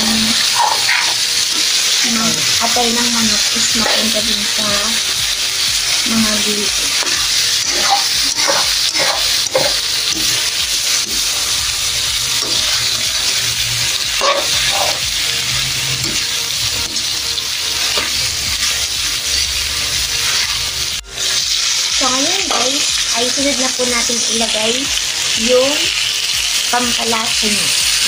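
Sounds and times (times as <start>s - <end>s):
food sizzling in a wok: 0.0s - 28.0s
metal ladle stirring: 6.9s - 11.2s.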